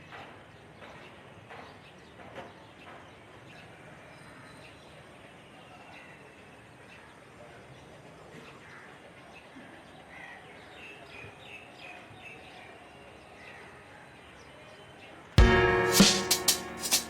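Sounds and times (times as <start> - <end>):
outdoor ambience hiss: 0.0 - 17.0
music with drums: 15.4 - 17.0.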